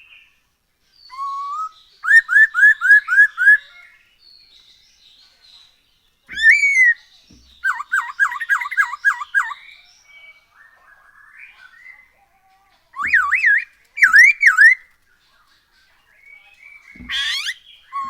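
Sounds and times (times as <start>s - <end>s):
bird singing whistled phrases: 1.0s - 4.0s, 6.3s - 12.2s, 13.0s - 14.8s, 16.3s - 18.0s.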